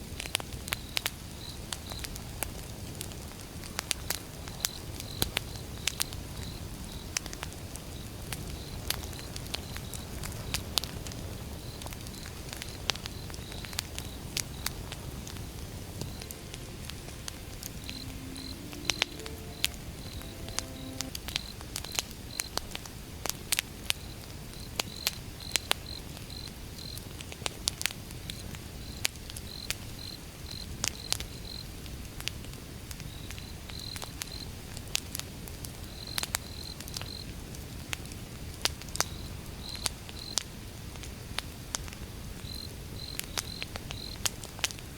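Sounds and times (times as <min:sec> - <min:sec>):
campfire crackling and popping: 0:07.1 - 0:19.8
insects chirping: 0:13.1 - 0:21.1.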